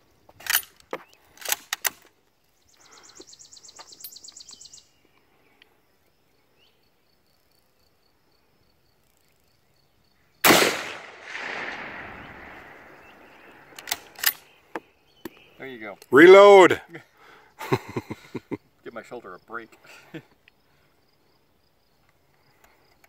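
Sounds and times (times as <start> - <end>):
rifle shot with echo: 10.4 - 14.4
sharp clicks: 10.5 - 14.5.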